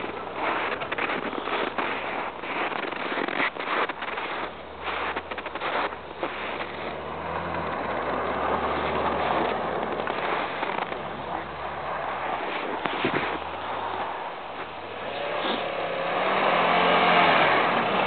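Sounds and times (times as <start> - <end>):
car engine running: 4.1 - 13.9.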